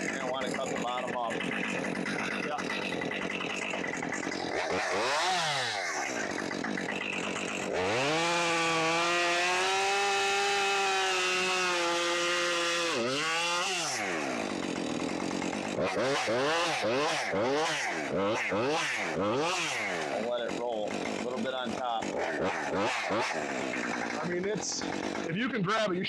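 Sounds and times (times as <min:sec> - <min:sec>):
chainsaw cutting wood: 0:00.0 - 0:26.0.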